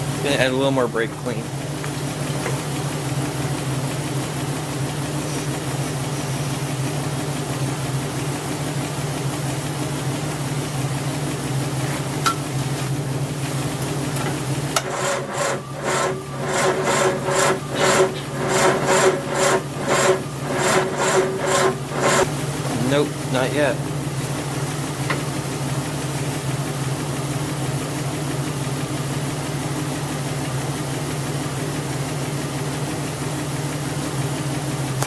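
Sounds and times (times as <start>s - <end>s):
car engine idling: 1.2s - 35.0s
engine cranking on starter: 14.8s - 23.0s.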